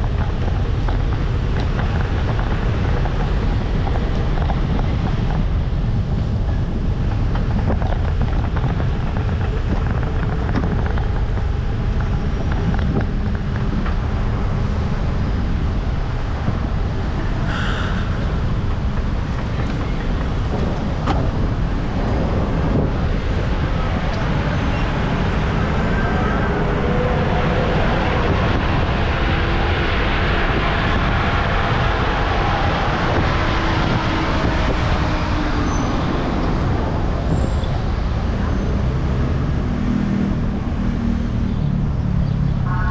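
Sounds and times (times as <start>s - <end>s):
vehicle and road noise: 0.0s - 42.9s
wind rumble on microphone: 0.0s - 42.9s.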